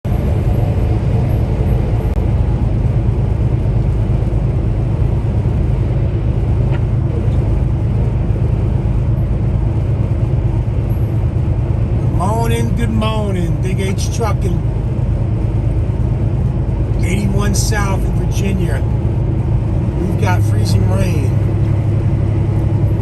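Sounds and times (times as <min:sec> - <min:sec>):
road noise: 0:00.0 - 0:23.0
truck diesel engine drone: 0:00.1 - 0:23.0.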